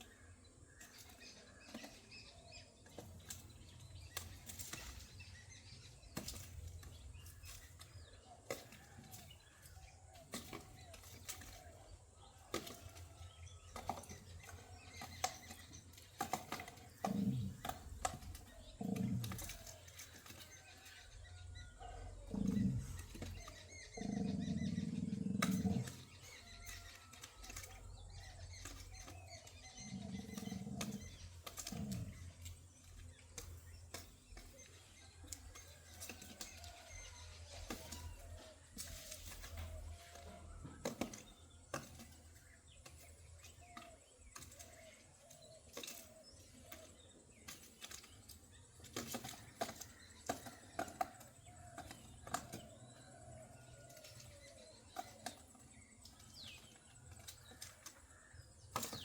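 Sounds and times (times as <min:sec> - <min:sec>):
pigeons cooing: 0:16.2 - 0:20.6, 0:21.6 - 0:32.6.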